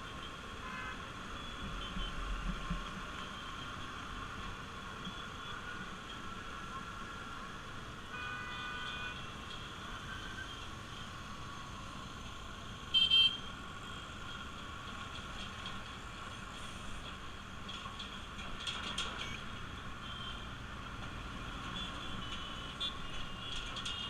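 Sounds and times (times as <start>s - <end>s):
road noise: 0.0s - 24.0s
vehicle horn toot: 8.1s - 9.2s, 12.9s - 13.4s.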